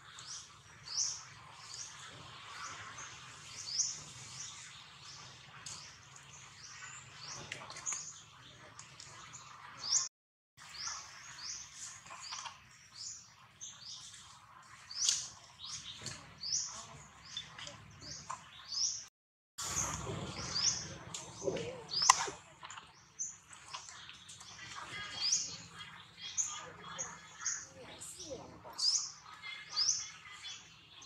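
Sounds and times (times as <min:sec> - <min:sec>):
bird chirping: 0:10.7 - 0:31.0.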